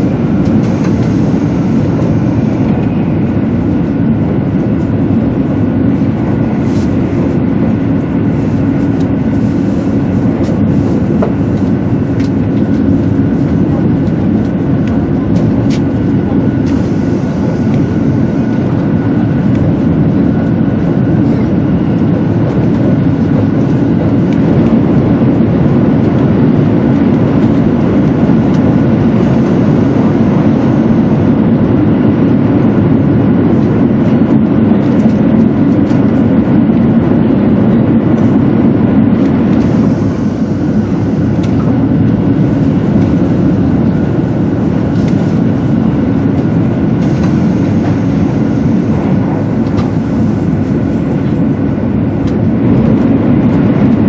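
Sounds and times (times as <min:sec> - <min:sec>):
train wheels rumbling: 0:37.0 - 0:53.1.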